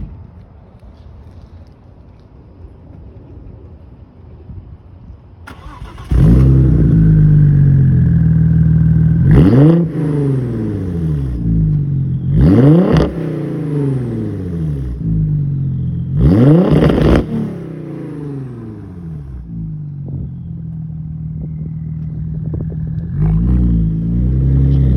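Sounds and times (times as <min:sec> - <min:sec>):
car engine starting and idling: 0:05.4 - 0:24.9
engine throttle blips: 0:05.5 - 0:24.9.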